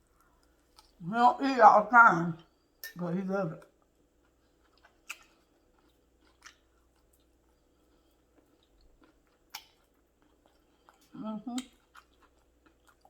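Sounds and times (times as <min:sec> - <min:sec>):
chewing food: 0:03.6 - 0:13.0.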